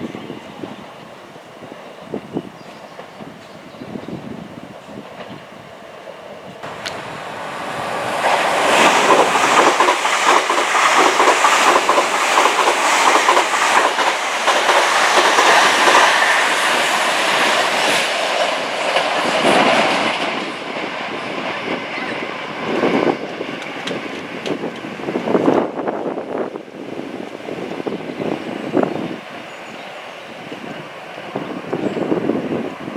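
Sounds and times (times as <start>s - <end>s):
train wheels clattering over rails: 6.5s - 25.8s.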